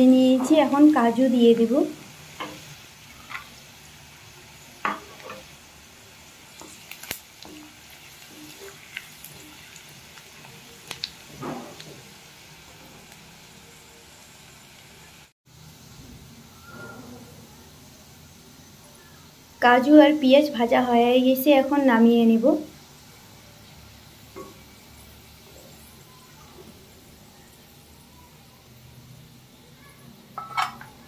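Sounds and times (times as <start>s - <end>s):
onions sizzling in oil: 0.0s - 31.0s
spatula scraping and tapping pan: 2.3s - 3.6s, 4.8s - 5.6s, 6.6s - 9.8s, 24.3s - 24.8s, 30.4s - 31.0s.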